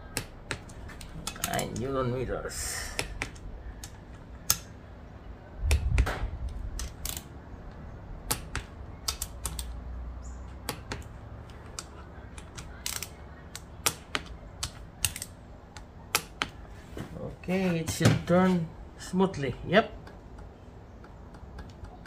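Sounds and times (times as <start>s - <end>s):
ratchet wrench metallic clicks: 6.7s - 7.3s, 11.8s - 13.2s, 14.6s - 15.3s.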